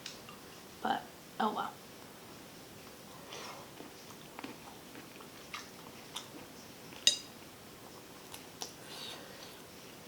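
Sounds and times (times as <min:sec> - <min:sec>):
chewing seafood with clicks: 0:03.8 - 0:07.2.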